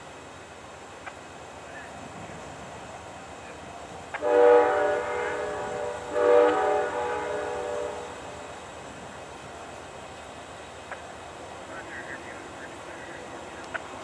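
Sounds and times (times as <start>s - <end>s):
locomotive air horn blasts: 4.2s - 8.3s.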